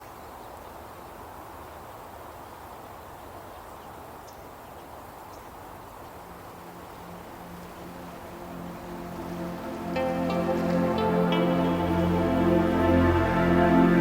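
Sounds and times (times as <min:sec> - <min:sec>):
soft rushing background: 0:06.1 - 0:14.0
low sustained music notes: 0:06.2 - 0:14.0.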